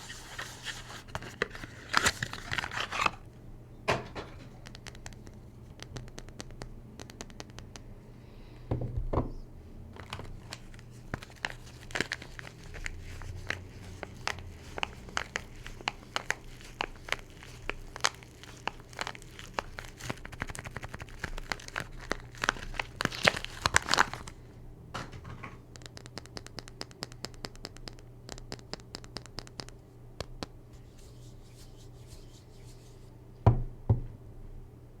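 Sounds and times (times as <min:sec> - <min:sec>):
wrapper crinkling and tearing: 0:00.0 - 0:03.2, 0:10.0 - 0:24.4.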